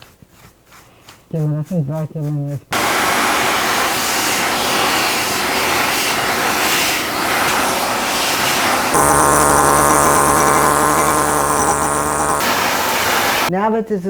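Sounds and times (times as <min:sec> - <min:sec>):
vacuum cleaner running: 0:02.8 - 0:13.5.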